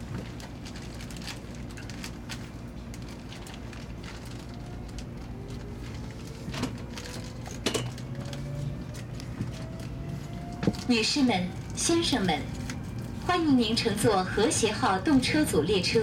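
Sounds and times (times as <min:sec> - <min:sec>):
train cabin low hum: 0:00.0 - 0:16.0
train whine rising in pitch: 0:04.1 - 0:16.0.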